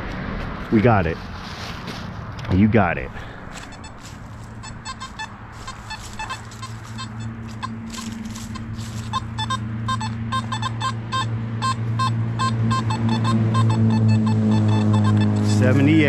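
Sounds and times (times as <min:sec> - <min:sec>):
metal detector beeping: 0:03.5 - 0:16.0.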